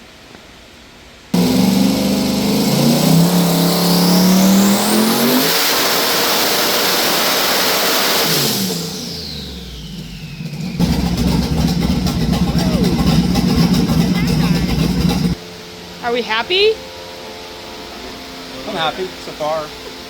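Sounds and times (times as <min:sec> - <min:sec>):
turbo whine: 0:01.4 - 0:06.1, 0:08.2 - 0:15.4
engine at full throttle: 0:01.4 - 0:15.4.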